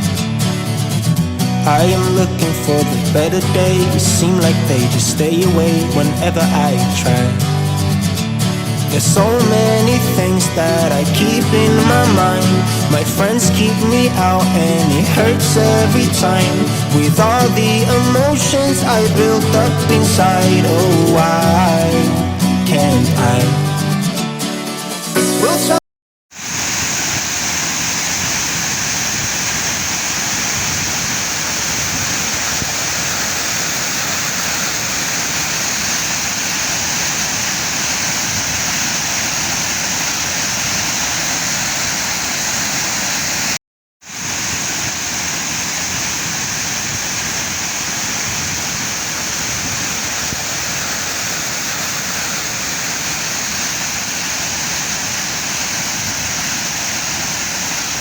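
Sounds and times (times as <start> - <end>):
waterfall rushing: 9.0 - 22.2, 25.7 - 58.0.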